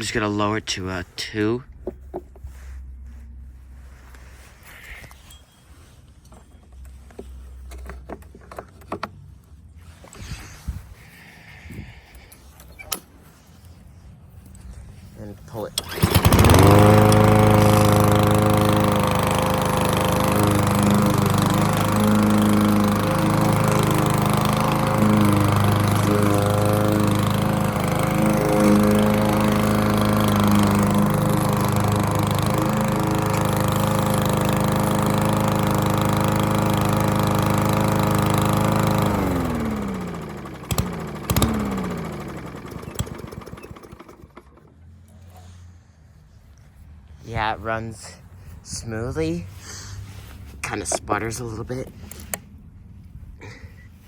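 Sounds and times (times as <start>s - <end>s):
lawn mower engine running: 15.7s - 44.9s
engine winding down clicks: 15.7s - 45.3s.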